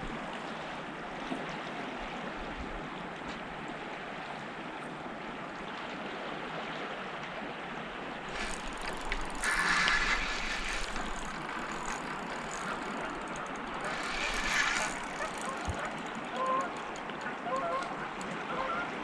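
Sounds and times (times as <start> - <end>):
fishing reel clicking whir: 8.2 - 18.4
river water rushing: 8.2 - 18.4.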